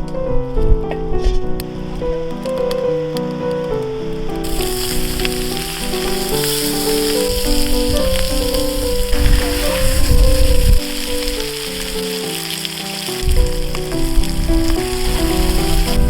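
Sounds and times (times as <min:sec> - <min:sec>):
background music stepping melody: 0:00.0 - 0:16.0
food frying sizzle: 0:04.4 - 0:16.0.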